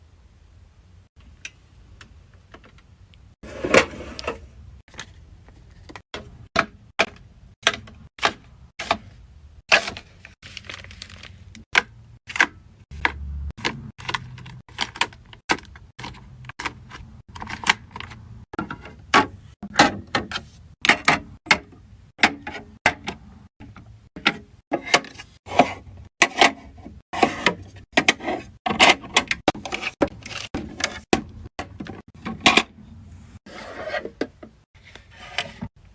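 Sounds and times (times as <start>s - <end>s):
plastic and glass containers clacking: 11.0s - 25.1s.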